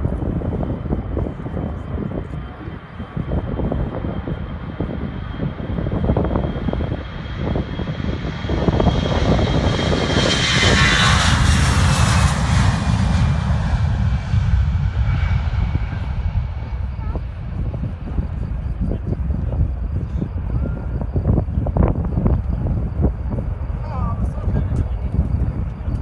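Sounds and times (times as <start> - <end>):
jet engines roaring past: 0.0 - 26.0
high whine dropping in pitch: 8.4 - 23.7.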